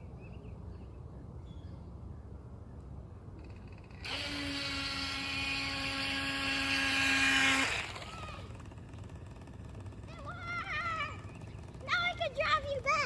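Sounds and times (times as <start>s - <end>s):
small electric motor whirring: 3.9s - 13.0s.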